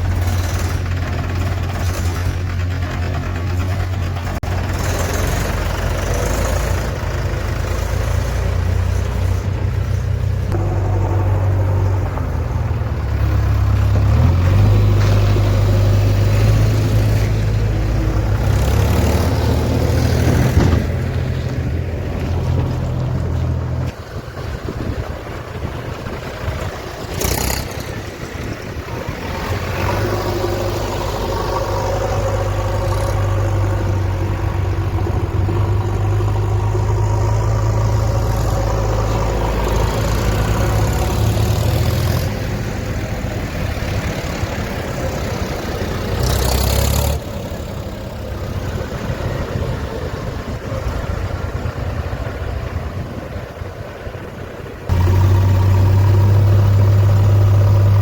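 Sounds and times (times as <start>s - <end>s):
heavy machinery diesel engine: 0.0s - 58.0s.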